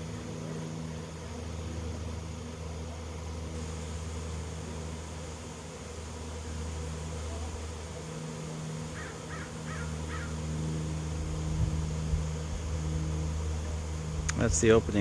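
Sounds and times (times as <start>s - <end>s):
bee swarm buzzing: 0.0s - 15.0s
bird calling: 8.9s - 10.5s.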